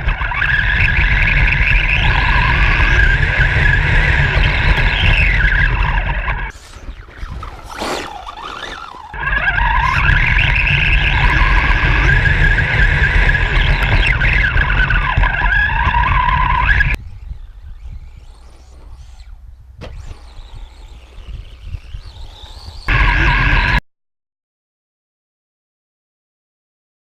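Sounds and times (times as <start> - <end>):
toy truck motor whining: 0.0 - 23.8
heavy low rumble: 0.6 - 7.6, 9.0 - 17.2.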